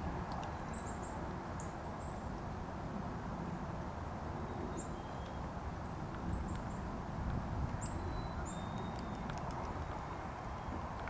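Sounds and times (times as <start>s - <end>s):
low outdoor rush: 0.0s - 11.0s
small bird chirping: 7.8s - 10.8s.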